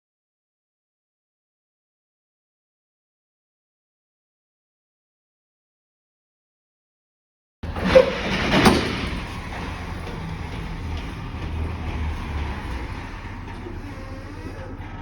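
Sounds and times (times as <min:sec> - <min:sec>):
loud clunks: 0:07.6 - 0:12.0
diesel truck engine rumbling: 0:07.6 - 0:15.0.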